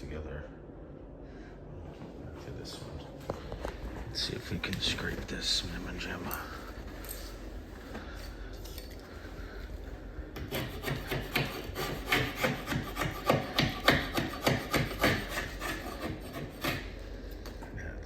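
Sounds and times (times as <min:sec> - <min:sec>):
scraper rasping on wood: 0:10.4 - 0:16.9.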